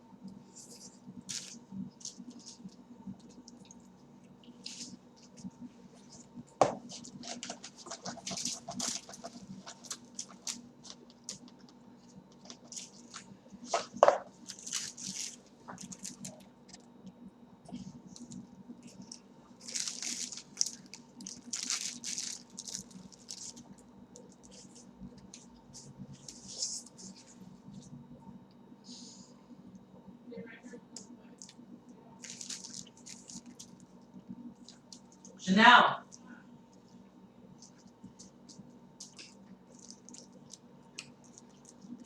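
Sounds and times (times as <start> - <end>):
paper packaging rustling: 0.7 - 2.8, 6.8 - 11.5, 12.4 - 16.5, 18.2 - 23.8, 32.2 - 33.8
chewing and mouth clicks: 37.6 - 42.0.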